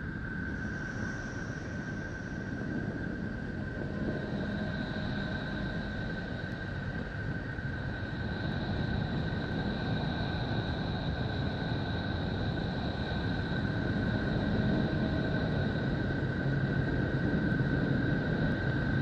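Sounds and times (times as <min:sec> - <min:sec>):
rumbling hiss drone: 0:00.0 - 0:19.0.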